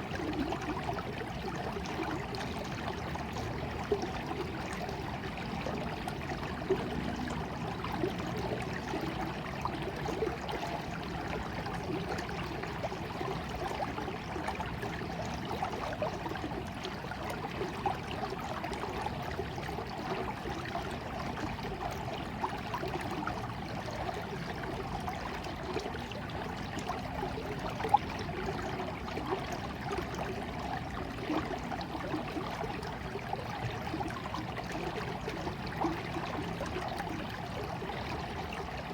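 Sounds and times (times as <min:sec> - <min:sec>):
small stream trickling: 0:00.0 - 0:38.9
water splashes: 0:00.0 - 0:38.9.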